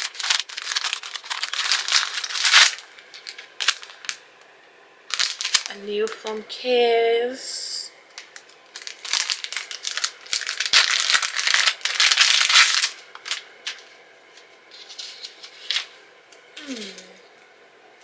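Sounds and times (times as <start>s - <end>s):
plastic packaging crinkling: 0.0s - 4.3s, 5.1s - 6.4s, 8.1s - 16.0s, 16.6s - 17.3s.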